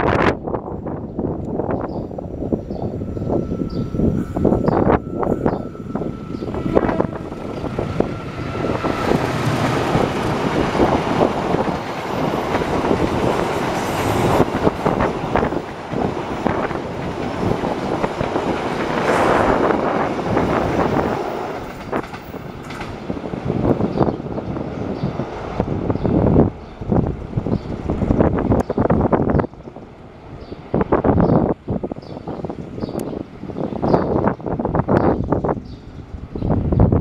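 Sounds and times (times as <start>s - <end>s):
diesel locomotive running under load: 1.2s - 37.0s
train wheels clattering over rails: 5.0s - 26.2s.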